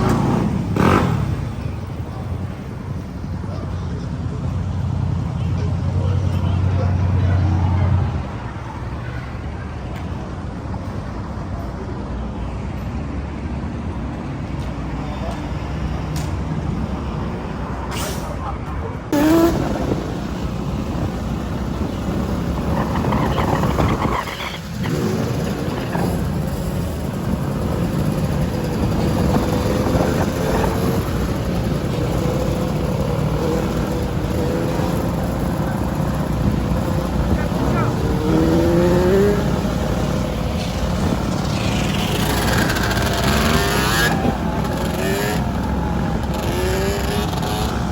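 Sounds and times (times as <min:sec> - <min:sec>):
dirt bike engine rumbling: 0:00.0 - 0:07.6, 0:19.2 - 0:47.9
wind on microphone: 0:19.2 - 0:44.9.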